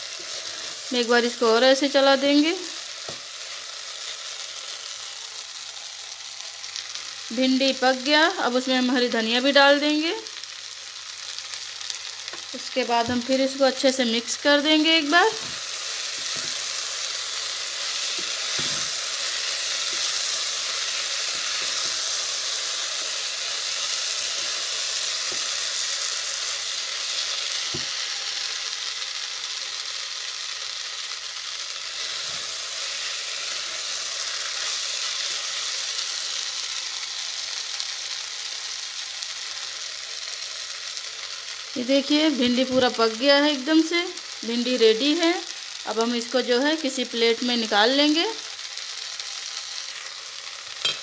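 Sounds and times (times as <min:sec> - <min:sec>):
okra sizzling in oil: 0:00.0 - 0:51.0.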